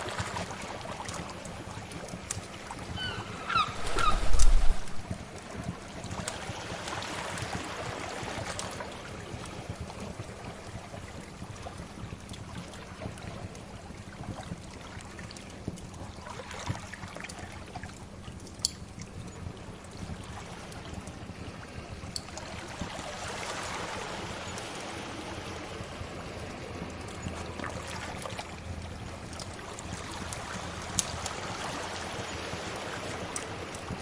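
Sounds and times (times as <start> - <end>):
sea waves washing: 0.0 - 5.3, 20.1 - 34.0
low rumble: 3.1 - 5.1.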